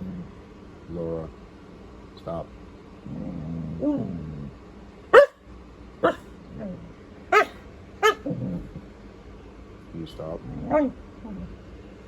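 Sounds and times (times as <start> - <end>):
husky calling: 5.2 - 5.4, 6.0 - 6.2, 7.3 - 8.3.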